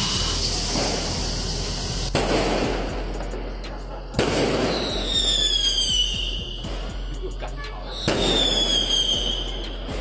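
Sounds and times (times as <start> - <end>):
steady noisy background: 0.0 - 5.4
sharp bangs with hiss: 0.0 - 10.0.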